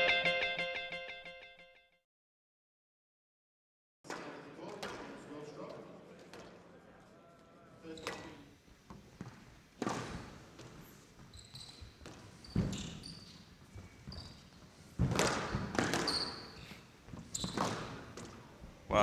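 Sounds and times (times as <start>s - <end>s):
shoes squeaking on court floor: 7.8s - 19.0s
squash ball hits: 9.2s - 10.7s, 15.0s - 18.5s.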